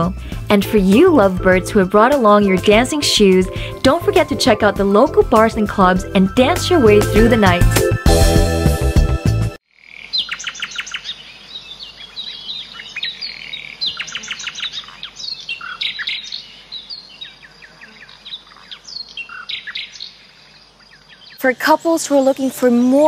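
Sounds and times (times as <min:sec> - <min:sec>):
faint outdoor hiss: 0:09.7 - 0:23.0
small birds chirping and twittering: 0:09.7 - 0:23.0.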